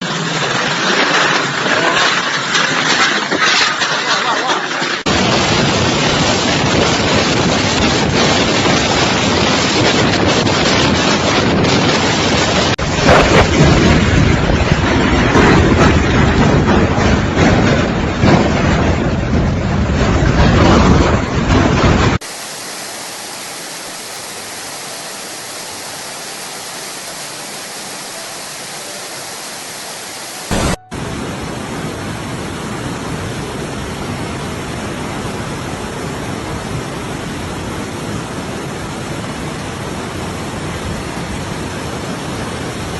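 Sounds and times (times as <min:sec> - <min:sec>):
steady storm hiss: 0:00.1 - 0:42.9
loud burst: 0:04.8 - 0:32.5
wind buffeting microphone: 0:05.0 - 0:22.3.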